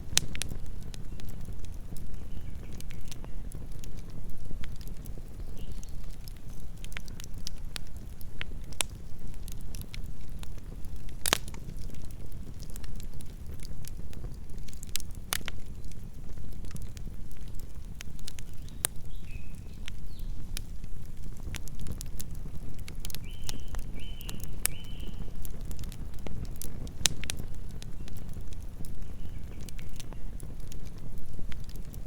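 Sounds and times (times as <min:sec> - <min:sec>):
burning wood crackling and popping: 0:00.0 - 0:32.0
low rumble of flames: 0:00.0 - 0:32.0.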